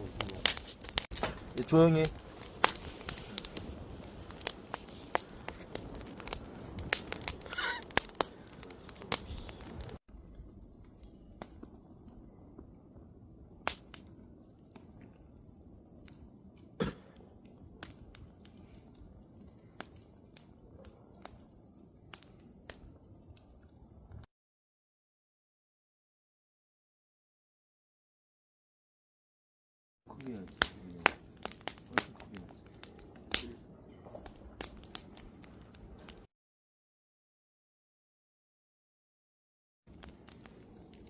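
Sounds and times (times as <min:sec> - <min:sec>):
wood fire crackling: 0:00.0 - 0:24.3, 0:30.1 - 0:36.3, 0:39.9 - 0:41.0.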